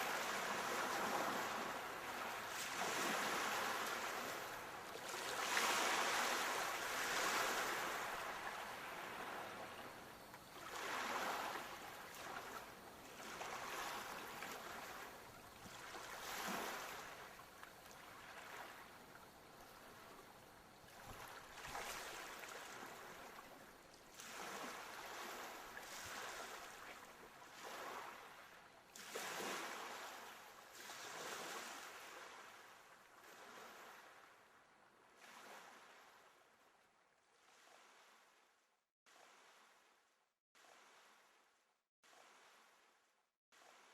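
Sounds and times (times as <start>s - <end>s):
sea waves breaking ashore: 0.0s - 34.3s.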